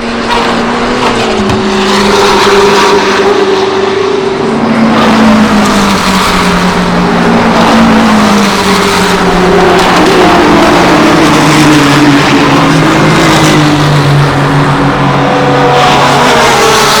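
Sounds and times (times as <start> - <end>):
racing car engines at speed: 0.0 - 17.0.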